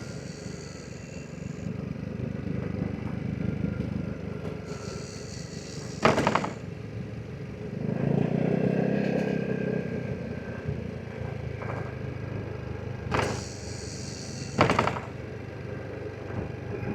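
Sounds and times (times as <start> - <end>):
scooter engine idling: 0.0 - 7.8, 11.4 - 16.1
clattering knocks: 4.7 - 6.7, 13.1 - 15.2.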